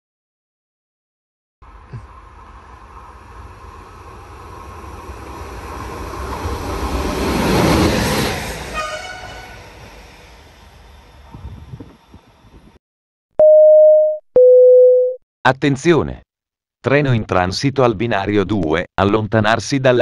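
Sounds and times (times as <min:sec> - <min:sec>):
train rumbling past: 0:01.6 - 0:12.8
multi-pitch train tone: 0:02.2 - 0:11.5.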